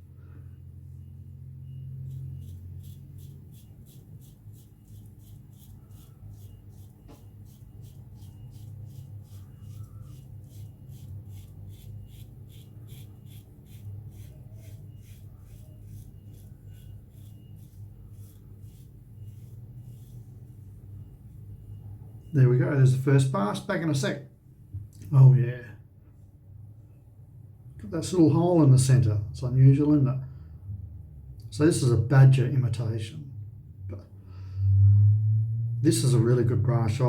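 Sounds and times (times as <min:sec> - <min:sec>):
razor scraping stubble: 0:02.0 - 0:21.6.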